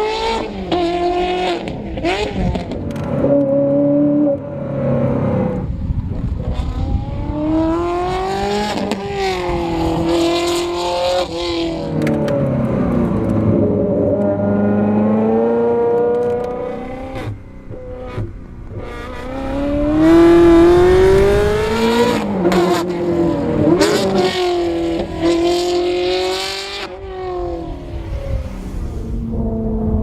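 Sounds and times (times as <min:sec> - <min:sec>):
sports car engine accelerating hard: 0:00.0 - 0:30.0.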